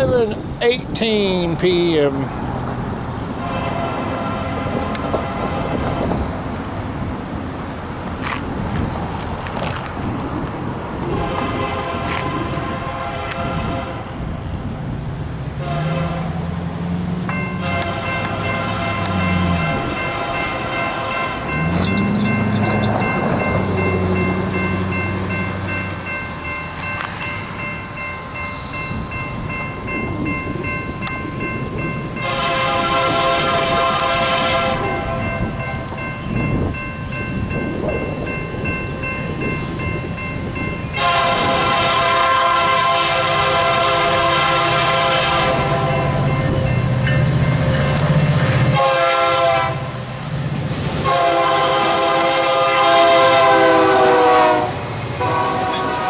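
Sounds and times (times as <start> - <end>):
rail and diesel rumble: 0.0 - 56.0
locomotive horn blasts: 3.4 - 6.2, 11.1 - 14.2, 15.6 - 16.4, 17.6 - 22.9, 32.2 - 35.5, 40.9 - 46.3, 48.6 - 50.0, 51.0 - 56.0.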